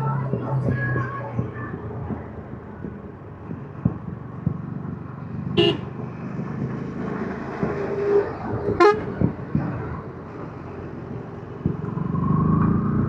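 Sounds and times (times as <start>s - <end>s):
vehicle horn toot: 5.6s - 5.9s, 8.8s - 9.1s.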